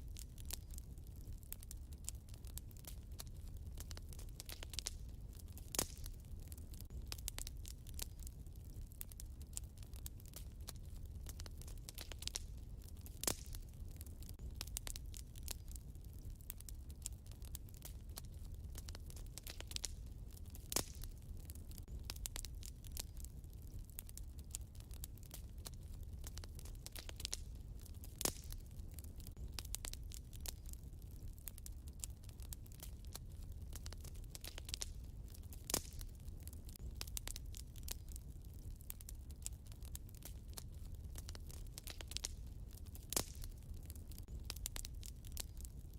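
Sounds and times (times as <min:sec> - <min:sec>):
fire low rumble: 0:00.0 - 0:45.9
wood fire crackling: 0:00.0 - 0:45.9.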